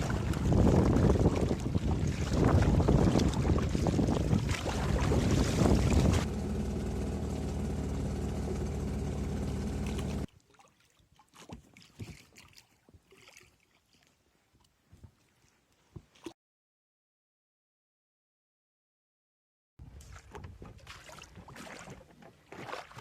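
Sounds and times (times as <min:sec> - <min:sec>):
wind buffeting microphone: 0:00.0 - 0:06.4
boat motor running: 0:04.4 - 0:10.3.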